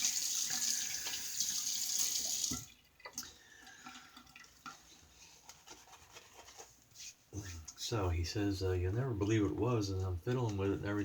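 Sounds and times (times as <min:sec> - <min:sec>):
sink faucet running: 0:00.0 - 0:02.8.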